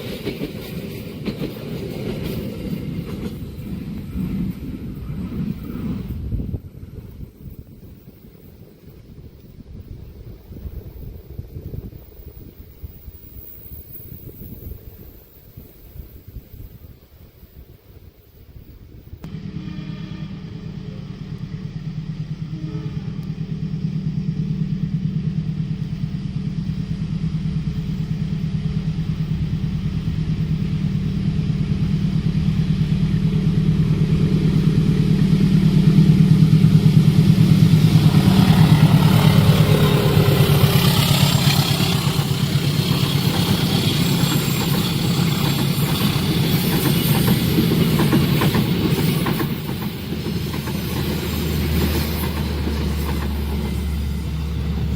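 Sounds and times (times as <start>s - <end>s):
train wheels clattering on rails: 0.0s - 6.3s, 23.1s - 54.9s
diesel engine hum: 20.4s - 44.0s, 51.0s - 54.9s.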